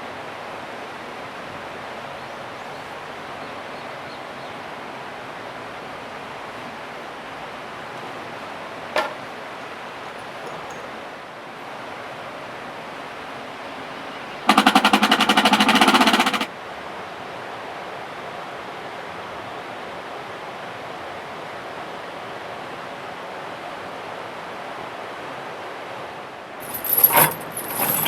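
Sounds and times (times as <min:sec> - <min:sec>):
fast rattling: 0:14.4 - 0:16.5, 0:26.6 - 0:28.0.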